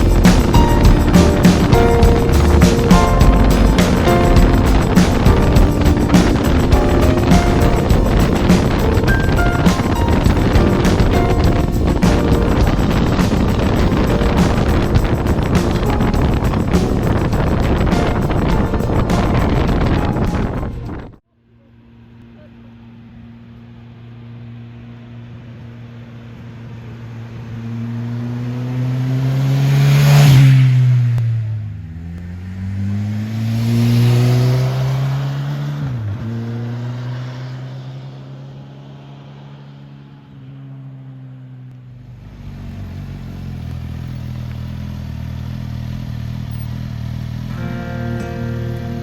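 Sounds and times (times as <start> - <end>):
motorcycle engine accelerating: 0.0 - 21.2, 41.9 - 49.0.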